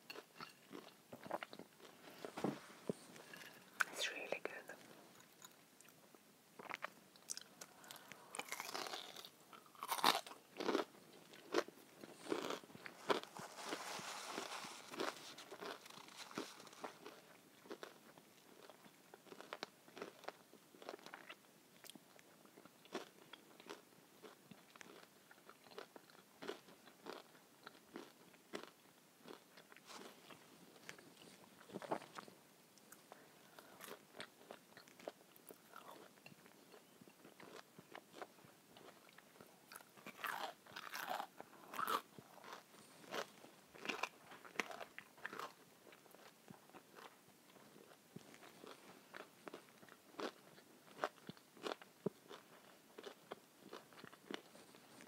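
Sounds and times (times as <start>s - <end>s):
person crunching crispy food: 6.6s - 22.0s, 22.8s - 31.0s, 39.7s - 54.5s.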